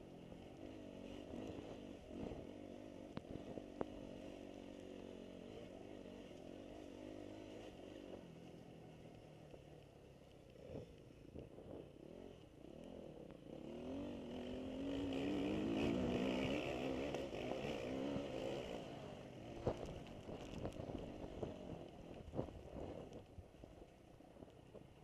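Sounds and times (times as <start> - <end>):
motocross bike engine revving: 0.0 - 8.2, 11.6 - 23.2.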